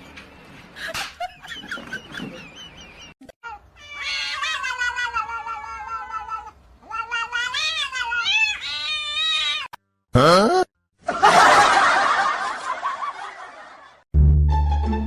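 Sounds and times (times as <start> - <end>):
cat yowling: 3.4 - 9.7.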